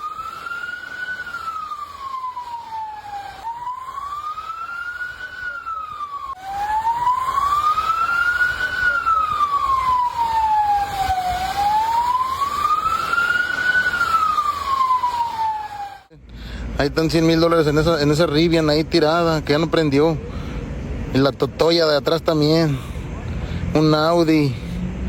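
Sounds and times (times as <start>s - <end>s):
emergency siren wailing: 0.0s - 16.2s.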